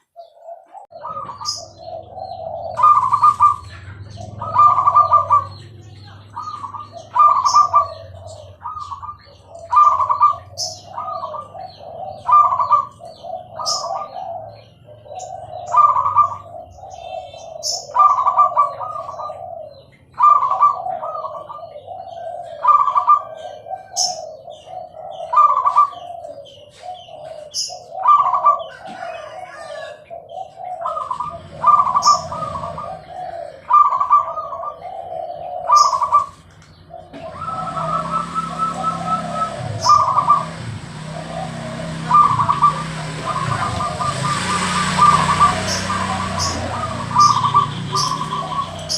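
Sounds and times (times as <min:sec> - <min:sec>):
dove cooing: 0:00.0 - 0:48.9.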